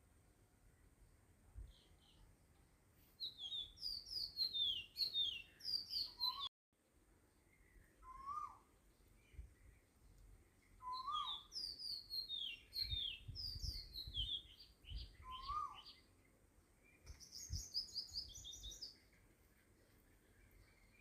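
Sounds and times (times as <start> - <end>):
birds twittering: 3.2 - 6.5, 7.4 - 21.0
rising and falling bird call: 3.2 - 6.5, 7.8 - 8.7, 10.8 - 16.1.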